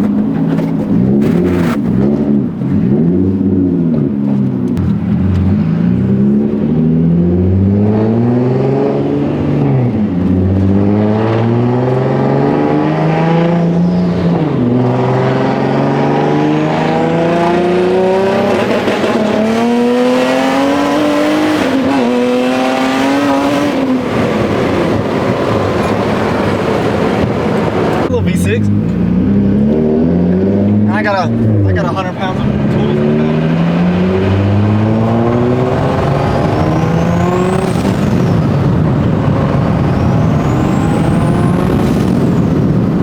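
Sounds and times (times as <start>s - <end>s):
turbo car engine accelerating: 0.0s - 43.0s.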